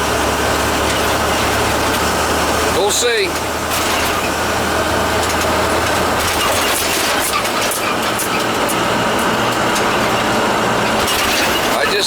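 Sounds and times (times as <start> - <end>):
road noise rushing: 0.0 - 12.0
truck engine hum: 0.0 - 12.0.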